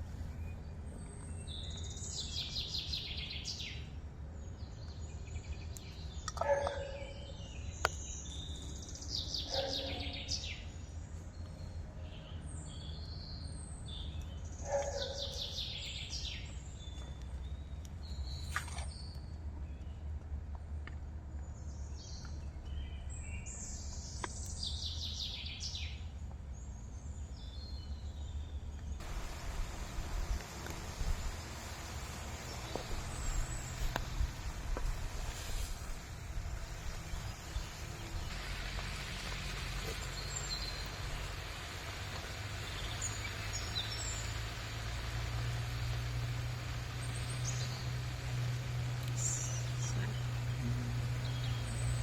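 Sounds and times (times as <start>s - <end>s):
steady low rumble: 28.9s - 52.0s
lower falling bird call: 29.0s - 52.0s
birds singing falling phrase: 37.0s - 52.0s.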